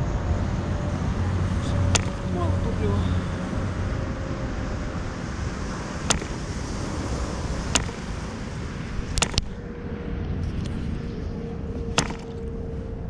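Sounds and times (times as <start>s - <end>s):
sharp pops or clicks: 1.9s - 2.2s, 6.0s - 6.6s, 7.7s - 8.2s, 9.1s - 9.6s, 12.0s - 12.4s.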